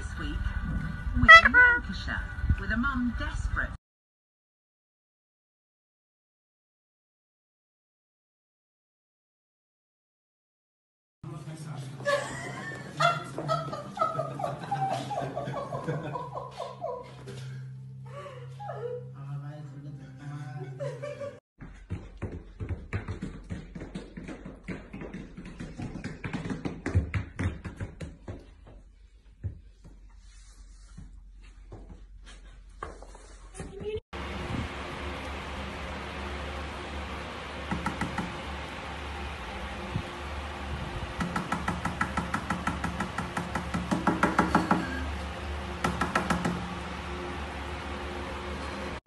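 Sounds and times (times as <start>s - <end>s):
dog footsteps on hard floor: 21.6s - 30.0s.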